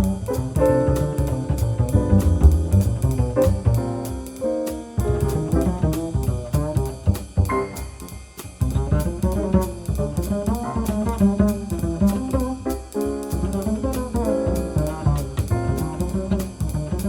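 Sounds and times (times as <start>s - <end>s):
double bass: 0.0s - 17.0s
jazz band playing: 0.0s - 17.0s.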